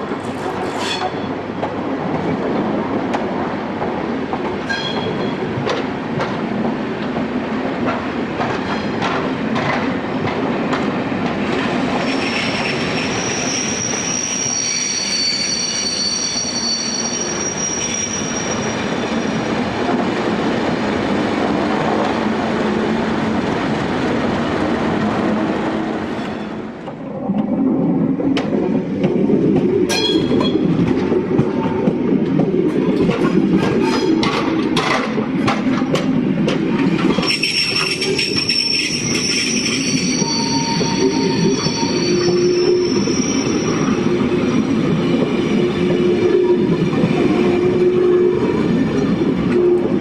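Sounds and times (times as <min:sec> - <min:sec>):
train wheels rumbling on rail: 0:00.0 - 0:50.0
clicks over rail joints: 0:00.1 - 0:11.6, 0:28.3 - 0:37.3
high-pitched wheel squeal: 0:12.0 - 0:19.5, 0:37.2 - 0:44.2.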